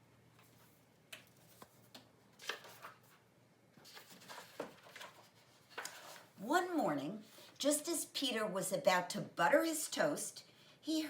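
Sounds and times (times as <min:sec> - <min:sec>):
book pages rustling and clicking: 0:00.4 - 0:03.2, 0:03.8 - 0:06.4.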